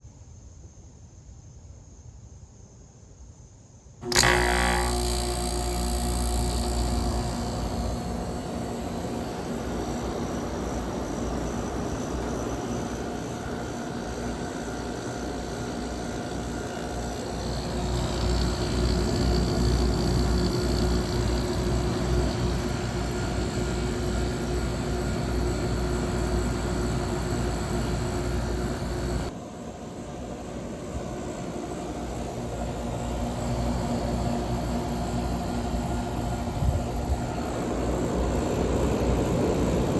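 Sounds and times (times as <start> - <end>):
steady tone: 4.0 - 29.3
air conditioner fan rush: 4.0 - 29.4, 30.2 - 39.9.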